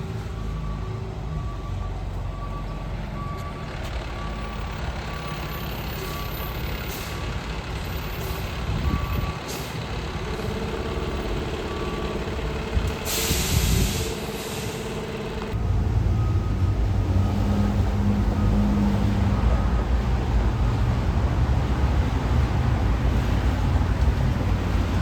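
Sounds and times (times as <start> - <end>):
truck engine running: 0.0 - 25.0
backup alarm beeping: 8.1 - 9.5, 10.4 - 14.4
air brake hiss: 12.9 - 14.9.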